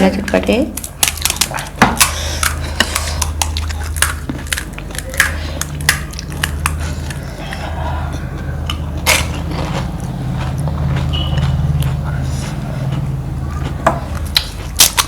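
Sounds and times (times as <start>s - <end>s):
steady low hum: 0.0s - 15.0s
crisp shells cracking: 0.8s - 6.8s
chewing: 0.8s - 15.0s.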